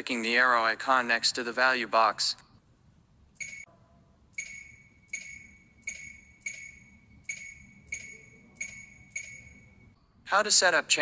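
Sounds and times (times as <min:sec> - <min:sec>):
electronic tap clicks with ringing tone: 0:04.4 - 0:09.7.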